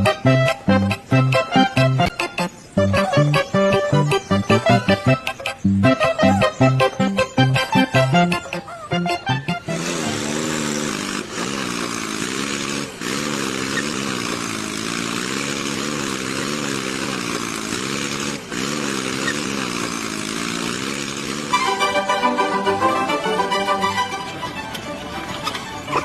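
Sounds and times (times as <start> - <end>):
motor hum wavering in pitch: 0.0 - 26.0
loud hiss: 9.7 - 22.0.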